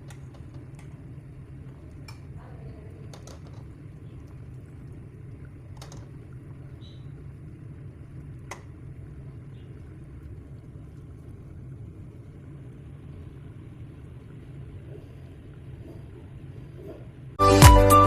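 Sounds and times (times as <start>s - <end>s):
low background rumble: 0.0s - 17.4s.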